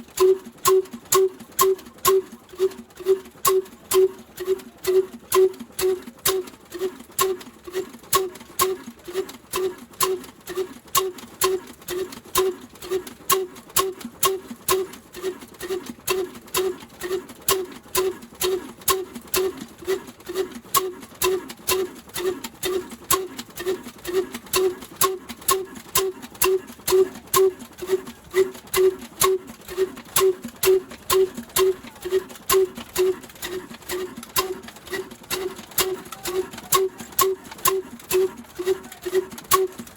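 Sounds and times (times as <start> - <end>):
diesel engine knocking steadily: 0.0 - 39.9.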